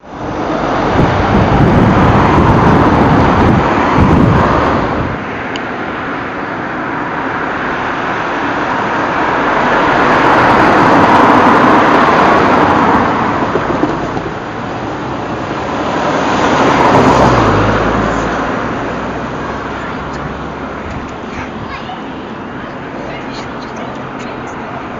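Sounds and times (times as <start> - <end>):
vehicles passing: 0.0 - 24.9.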